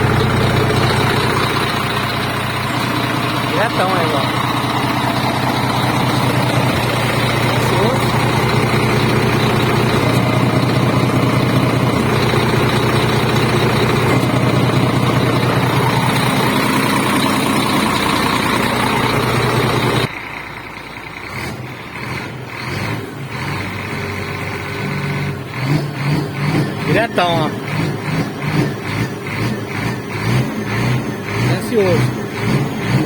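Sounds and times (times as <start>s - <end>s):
diesel truck engine running: 0.0s - 33.0s.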